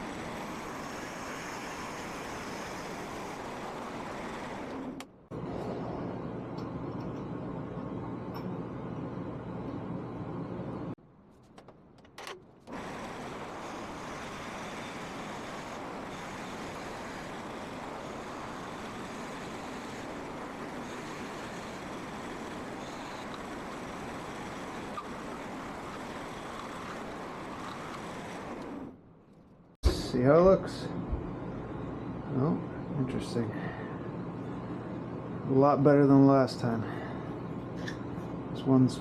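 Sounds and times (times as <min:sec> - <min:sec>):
woodworking machine running: 0:00.0 - 0:06.3, 0:12.7 - 0:29.0.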